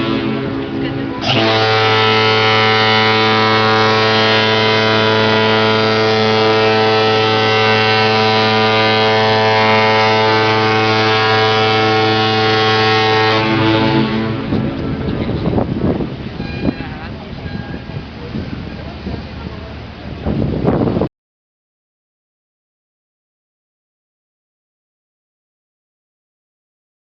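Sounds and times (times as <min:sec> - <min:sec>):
ship horn blast: 0:00.0 - 0:21.1.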